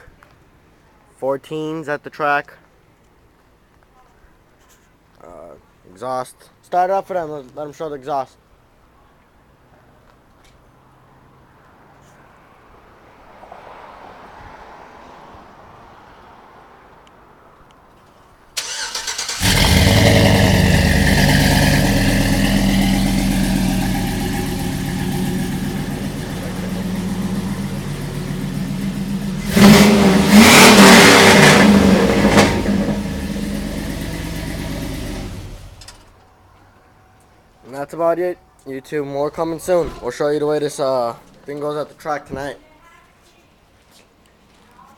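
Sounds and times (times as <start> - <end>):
car engine idling and revving: 18.6 - 36.1.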